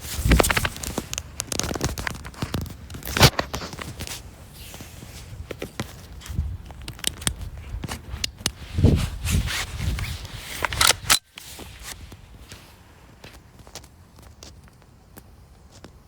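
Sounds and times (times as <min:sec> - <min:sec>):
rustling handling noises: 0:00.0 - 0:16.0
sharp clicks: 0:10.6 - 0:11.4.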